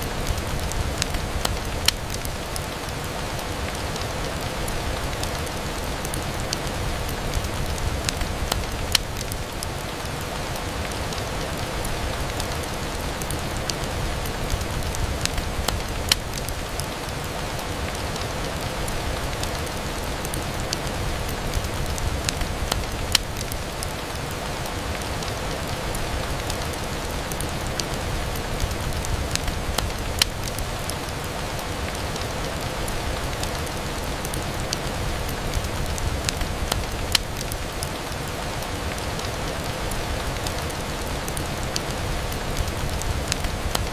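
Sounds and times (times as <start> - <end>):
rain falling on a window: 0.0 - 43.9
sharp pops and clicks: 29.0 - 30.6, 35.5 - 37.5.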